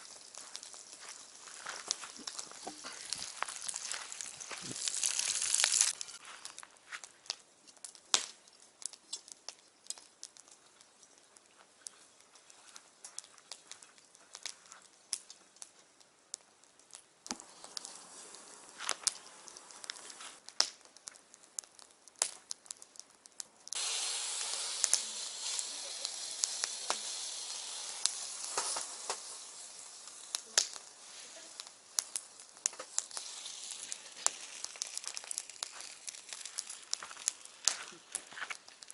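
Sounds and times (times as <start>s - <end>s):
loud hiss: 0.0s - 6.0s, 17.4s - 20.4s, 23.8s - 38.1s
campfire crackling and popping: 0.0s - 38.9s.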